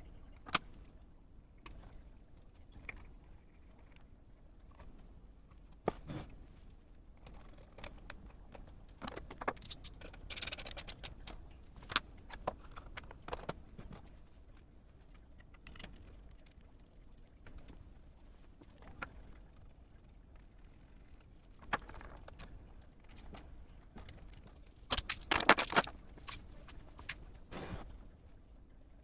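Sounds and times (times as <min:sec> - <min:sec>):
metal jingling rattle: 0:24.9 - 0:26.4
small metal objects clinking: 0:24.9 - 0:26.4.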